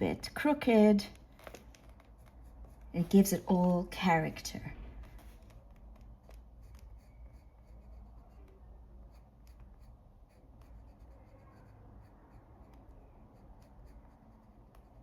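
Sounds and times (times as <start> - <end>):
pencil scratching on paper: 1.8 - 15.0.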